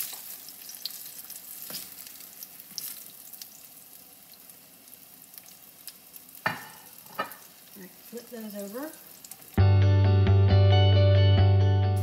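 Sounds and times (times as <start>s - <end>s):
food sizzling in hot oil: 0.0s - 9.6s.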